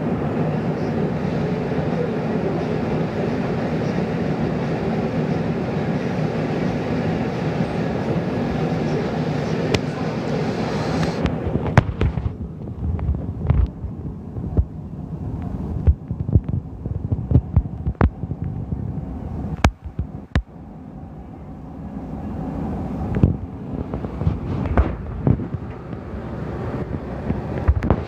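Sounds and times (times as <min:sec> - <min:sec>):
low rumbling store ambience: 0:00.0 - 0:28.0.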